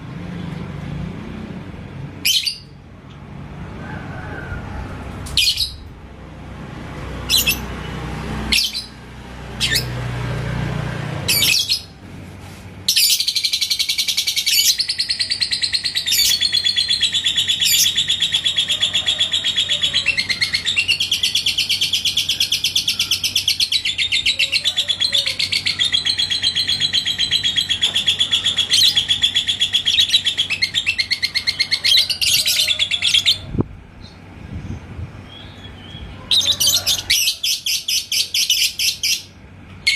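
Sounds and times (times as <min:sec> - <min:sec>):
lovebird chirping and trilling: 0:02.2 - 0:02.8, 0:05.3 - 0:06.0, 0:07.2 - 0:07.7, 0:08.4 - 0:09.0, 0:09.6 - 0:10.0, 0:11.3 - 0:11.9, 0:12.9 - 0:39.9.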